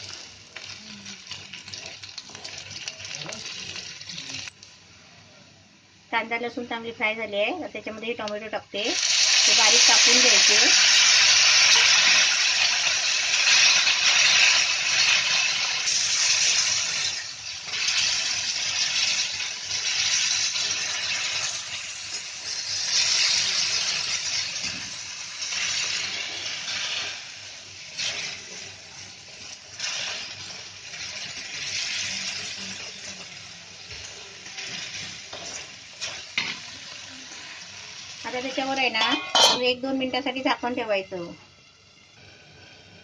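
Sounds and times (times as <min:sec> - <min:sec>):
tomatoes sizzling in hot oil: 0:00.0 - 0:04.8, 0:06.1 - 0:43.0
wooden spatula scraping a pan: 0:33.9 - 0:36.6.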